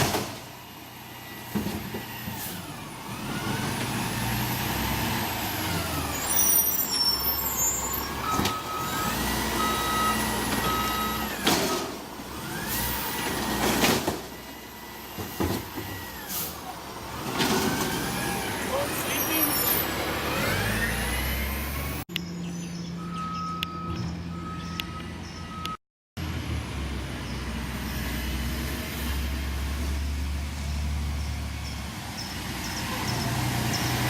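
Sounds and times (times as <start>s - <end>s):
garbage truck diesel engine: 0.0s - 34.0s
backup alarm beeping: 8.2s - 11.3s, 23.0s - 25.8s.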